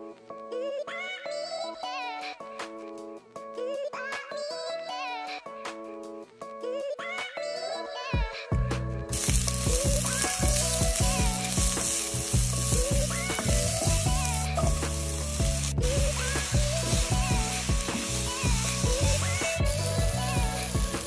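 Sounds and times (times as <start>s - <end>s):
background music: 0.0s - 21.0s
oil sizzling in frying pan: 9.1s - 21.0s.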